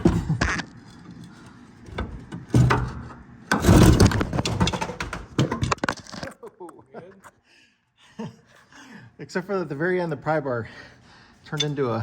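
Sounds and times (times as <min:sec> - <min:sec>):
heavy metal clunks and scraping: 0:00.0 - 0:06.3.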